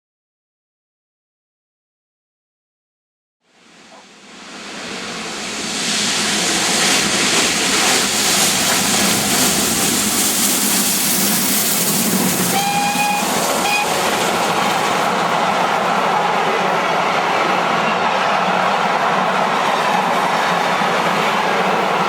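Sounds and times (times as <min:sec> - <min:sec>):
train passing: 0:03.5 - 0:22.0
short high tone: 0:12.5 - 0:14.0.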